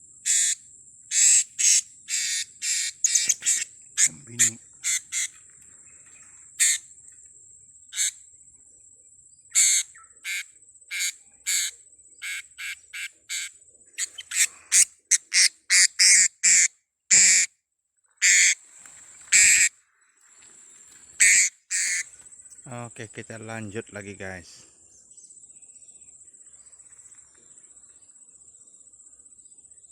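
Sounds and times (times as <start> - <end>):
high insect whine: 0.0 - 17.5, 18.1 - 29.9
parrots giving sharp high calls: 0.3 - 5.3, 6.6 - 6.8, 9.6 - 17.5, 18.2 - 18.6, 19.3 - 19.7, 21.2 - 22.1.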